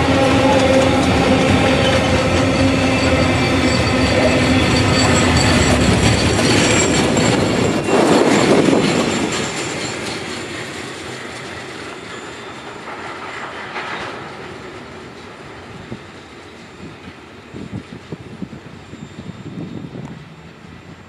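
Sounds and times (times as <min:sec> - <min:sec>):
high wheel squeal: 0:00.0 - 0:14.3, 0:18.7 - 0:21.0
freight train rolling on rails: 0:00.0 - 0:21.0.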